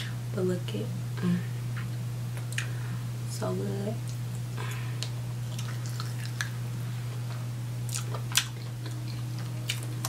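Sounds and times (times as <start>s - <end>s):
steady low hum: 0.0s - 10.0s
chewing and wet smacks: 5.0s - 6.6s, 7.2s - 10.0s.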